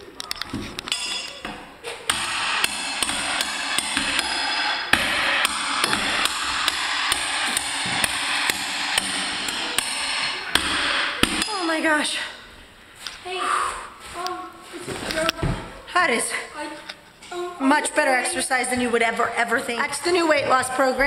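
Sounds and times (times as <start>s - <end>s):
scattered knocks: 1.0s - 11.7s
background music with percussive beat: 2.1s - 11.5s.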